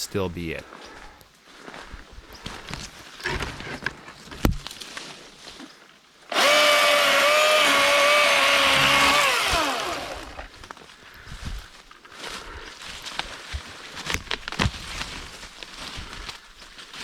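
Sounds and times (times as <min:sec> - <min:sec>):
electric chainsaw whining: 0:06.3 - 0:10.5.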